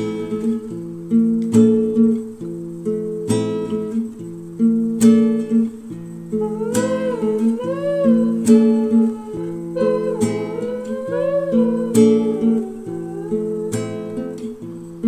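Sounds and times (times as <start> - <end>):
pop music with acoustic guitar: 0.0 - 15.0.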